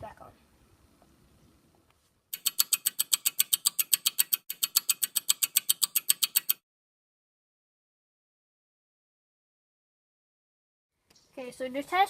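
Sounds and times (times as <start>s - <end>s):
rapid mechanical clicking: 2.3s - 6.6s.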